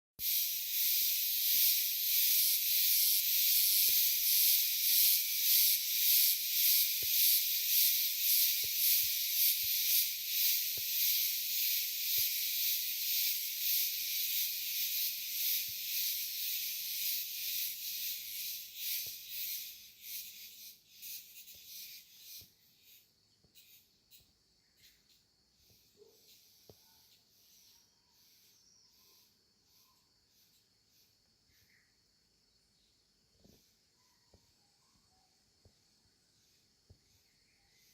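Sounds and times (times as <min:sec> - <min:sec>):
cicadas buzzing: 0:00.2 - 0:32.9.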